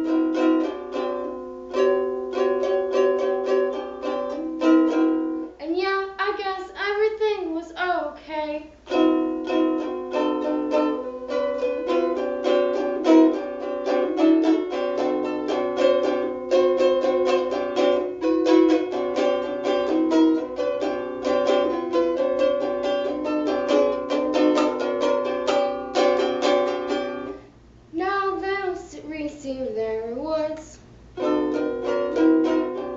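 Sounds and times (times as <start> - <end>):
ukulele plucked notes: 0.0 - 5.6, 8.8 - 28.7, 31.2 - 32.9.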